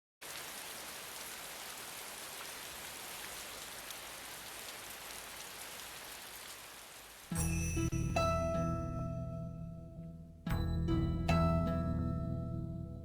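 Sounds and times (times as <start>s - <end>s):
steady rain falling: 0.2s - 7.6s.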